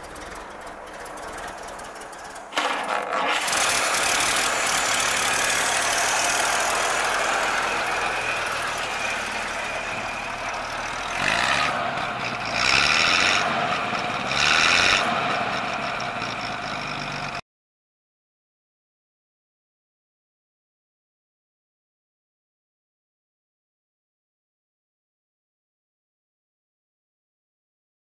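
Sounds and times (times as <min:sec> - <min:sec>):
car engine running: 0:00.0 - 0:17.4.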